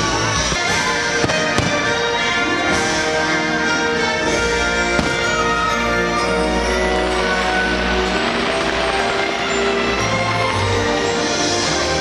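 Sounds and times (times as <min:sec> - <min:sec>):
orchestral music: 0:00.0 - 0:12.0
fireworks bursting: 0:00.6 - 0:03.0, 0:04.8 - 0:10.6.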